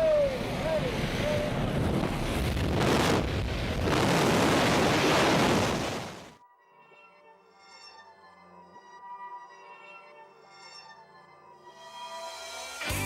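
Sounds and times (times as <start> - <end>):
strong wind over microphone: 0.0 - 6.3.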